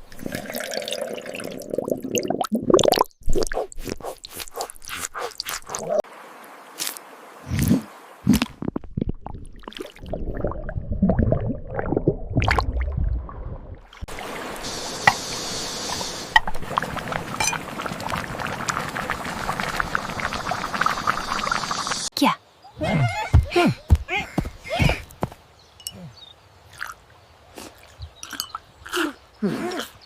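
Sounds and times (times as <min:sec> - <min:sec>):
water splashing and gurgling: 0:00.0 - 0:22.1
water rushing hiss: 0:14.1 - 0:22.1.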